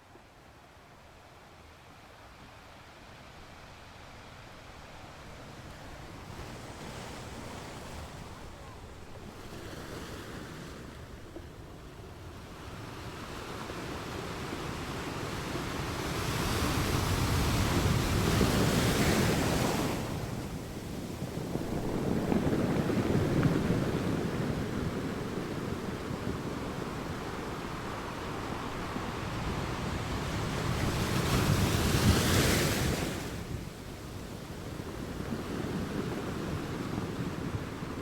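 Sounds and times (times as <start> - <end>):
sea waves breaking: 15.6 - 33.8.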